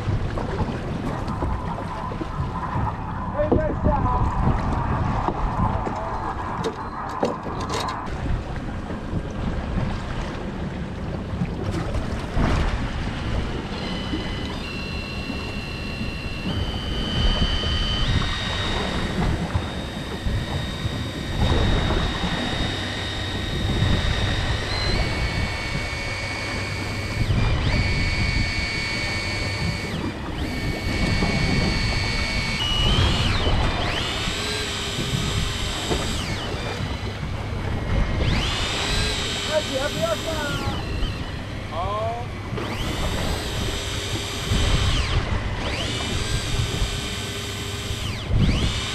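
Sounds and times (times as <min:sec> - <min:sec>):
wind on microphone: 0:00.0 - 0:47.2, 0:47.8 - 0:48.9
boat running on sea: 0:00.0 - 0:48.9
high steady tones: 0:13.5 - 0:48.9.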